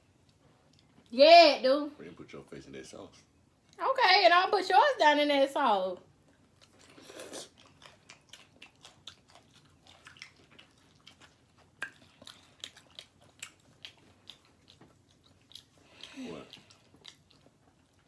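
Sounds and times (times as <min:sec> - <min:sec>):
chewing food with mouth clicks: 0:00.2 - 0:01.1, 0:06.2 - 0:18.0.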